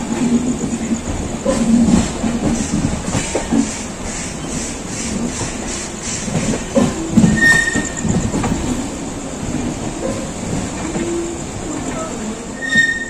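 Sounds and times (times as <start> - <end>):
train wheels rumbling: 0.0 - 13.0
high wheel squeal: 6.0 - 8.6, 10.9 - 13.0.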